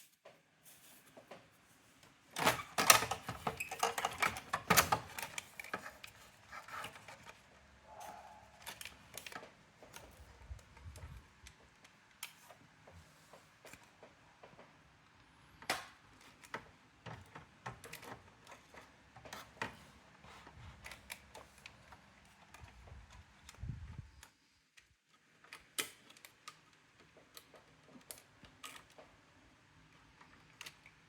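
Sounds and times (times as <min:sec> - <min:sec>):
plastic and metal parts clattering: 0:02.3 - 0:07.5.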